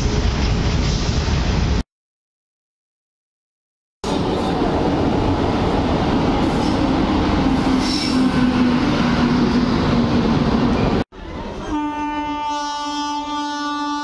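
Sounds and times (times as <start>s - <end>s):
rush of train wheels on rails: 4.0s - 11.0s
locomotive hum: 4.0s - 14.0s.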